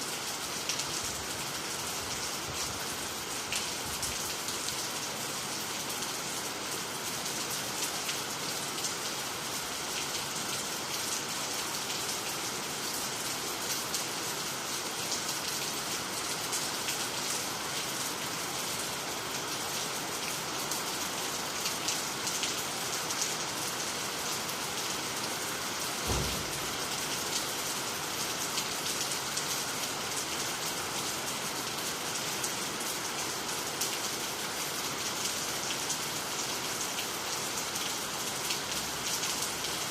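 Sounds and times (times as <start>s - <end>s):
steady rain falling: 0.0s - 39.9s
low thump: 26.0s - 27.0s.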